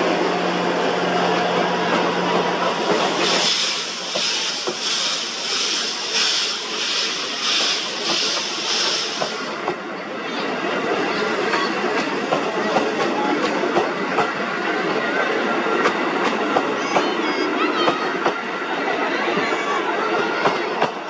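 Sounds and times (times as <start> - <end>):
train rumbling along track: 0.0 - 21.0
steam locomotive chuffing: 2.6 - 17.2
train wheels clicking: 2.7 - 9.9, 11.2 - 15.0.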